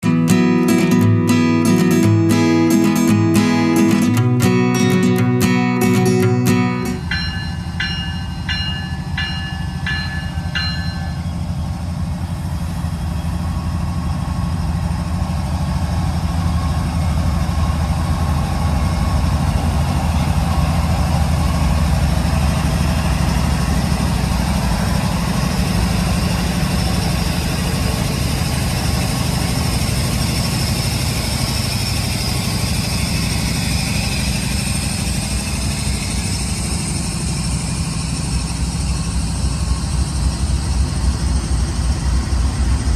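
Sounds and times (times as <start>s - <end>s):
diesel train engine rumble: 0.0s - 42.9s
bell-like dings: 3.8s - 11.6s.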